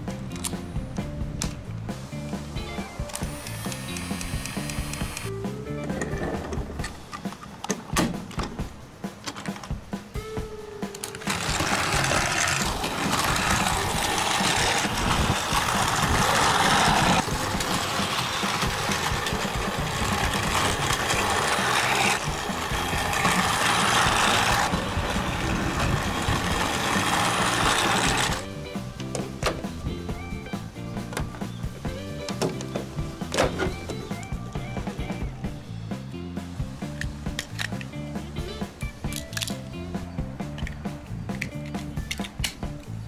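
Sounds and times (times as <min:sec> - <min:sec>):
background music: 0:00.0 - 0:43.0
toy train motor whirring: 0:03.0 - 0:05.3, 0:11.0 - 0:28.5.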